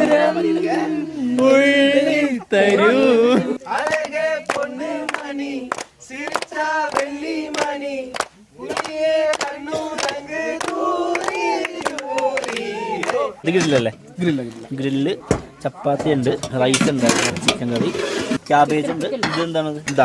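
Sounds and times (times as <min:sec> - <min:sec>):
group of people singing: 0:00.0 - 0:14.0
hand claps: 0:01.3 - 0:01.6, 0:02.6 - 0:02.9, 0:03.6 - 0:13.9.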